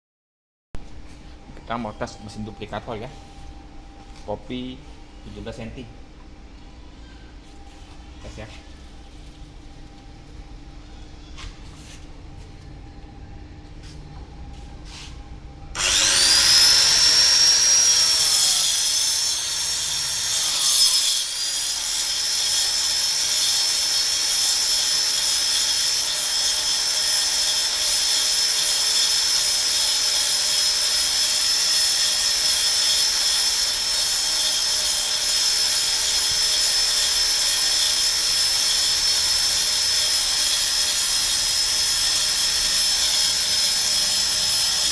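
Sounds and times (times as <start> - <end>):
spindle motor whining: 15.7 - 20.5
cutter rasping wood: 15.8 - 44.9.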